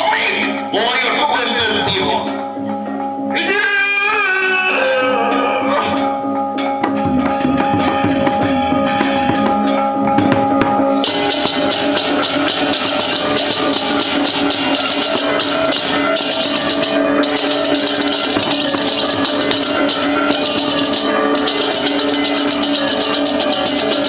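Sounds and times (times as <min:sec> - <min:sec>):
ringing metallophone tones: 0:04.9 - 0:24.0
drumming: 0:06.8 - 0:24.0
bright clashing cymbal strokes: 0:11.0 - 0:24.0.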